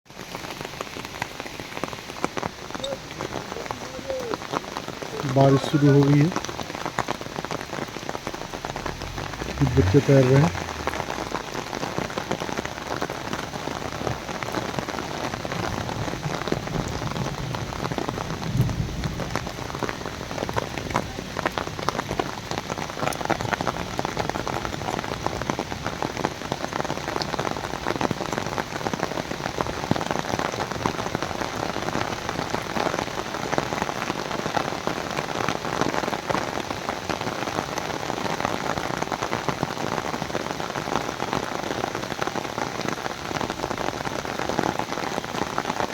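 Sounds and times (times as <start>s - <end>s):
rain pouring: 0.1s - 45.9s
low rumble: 6.4s - 15.5s.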